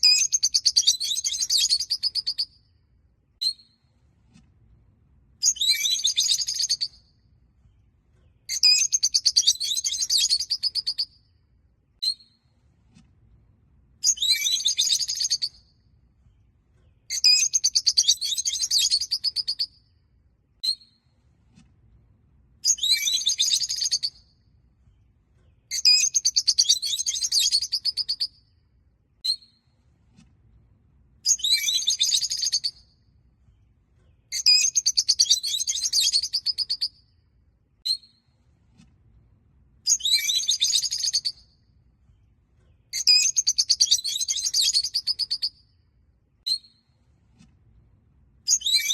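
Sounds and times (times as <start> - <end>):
short bird chirps: 0.0 - 2.6, 5.4 - 7.1, 8.2 - 11.2, 14.0 - 15.7, 16.9 - 19.8, 22.6 - 24.4, 25.5 - 28.5, 31.3 - 33.0, 34.1 - 37.1, 39.9 - 41.6, 42.2 - 45.7, 48.5 - 48.9.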